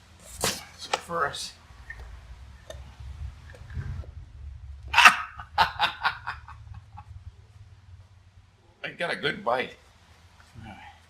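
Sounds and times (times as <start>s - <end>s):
gull calling: 4.8s - 7.0s.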